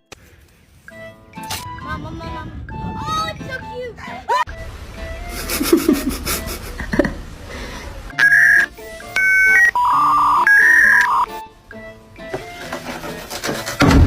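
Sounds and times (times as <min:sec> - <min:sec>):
low hum: 0:04.5 - 0:10.4
electronic beeping melody: 0:08.1 - 0:11.5.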